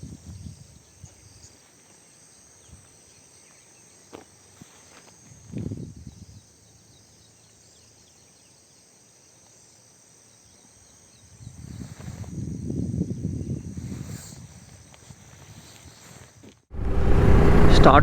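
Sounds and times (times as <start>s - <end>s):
insects chirring: 0.0s - 16.5s
low rumble: 16.7s - 18.0s.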